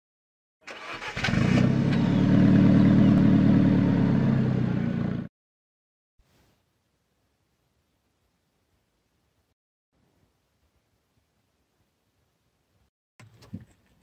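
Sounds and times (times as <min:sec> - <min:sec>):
car engine starting and idling: 0:00.6 - 0:05.3.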